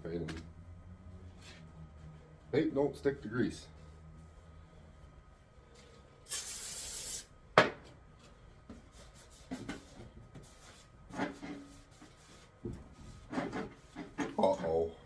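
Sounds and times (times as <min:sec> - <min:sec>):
spray can hiss: 0:06.2 - 0:07.3
faint rubbing and handling: 0:08.2 - 0:14.4.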